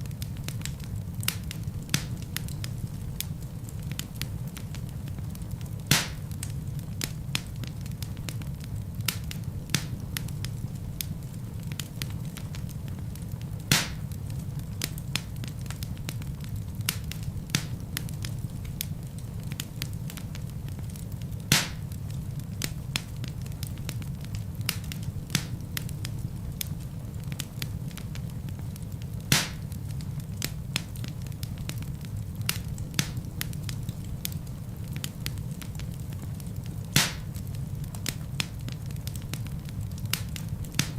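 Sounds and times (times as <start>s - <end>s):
burning logs crackling and popping: 0.0s - 40.9s
low rumble of flames: 0.0s - 40.9s.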